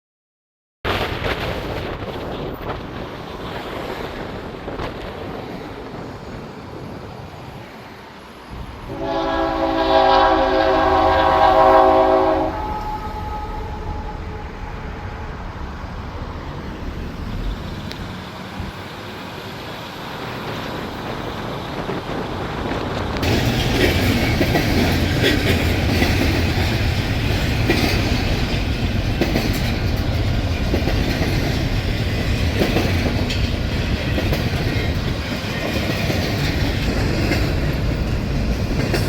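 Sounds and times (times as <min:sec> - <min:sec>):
wind: 0:00.8 - 0:39.0
train rumbling: 0:00.9 - 0:39.0
locomotive air horn blast: 0:08.6 - 0:15.4.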